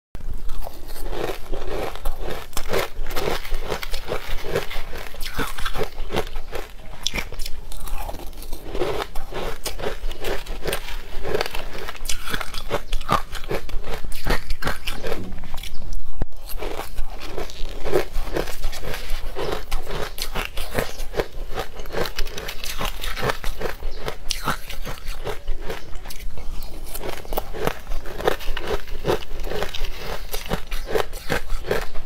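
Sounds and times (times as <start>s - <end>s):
crunching frozen food: 0.2s - 32.0s.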